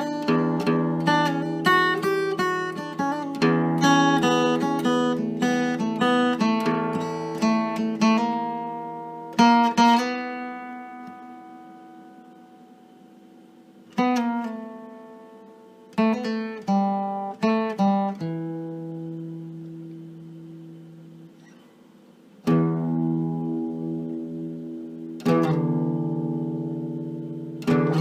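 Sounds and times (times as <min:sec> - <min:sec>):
acoustic strings strumming chords: 0:00.0 - 0:28.0.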